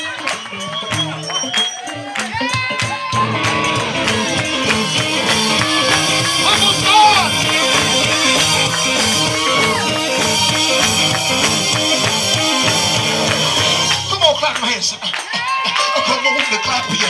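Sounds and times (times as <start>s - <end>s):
drums: 0.0s - 17.0s
lead singer's voice: 2.4s - 17.0s
stepping bass line: 3.0s - 15.2s.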